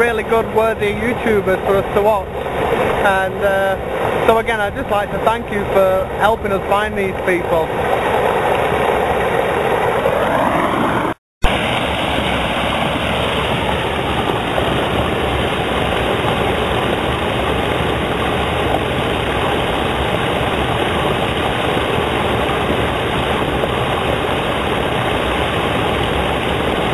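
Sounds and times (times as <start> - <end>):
water rushing over waterfall: 0.0 - 26.9.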